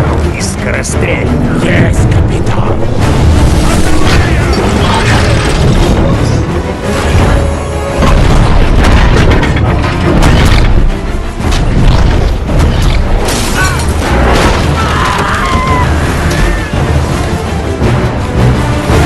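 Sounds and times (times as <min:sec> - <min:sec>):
orchestral score: 0:00.0 - 0:19.0.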